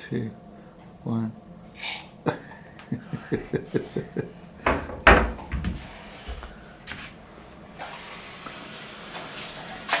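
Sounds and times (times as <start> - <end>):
tap water running into sink: 7.8 - 10.0.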